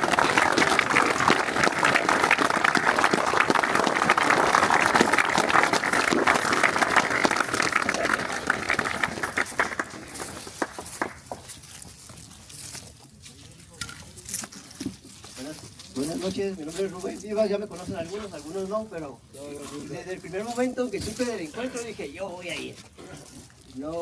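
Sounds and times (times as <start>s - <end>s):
crowd applauding: 0.0s - 11.5s.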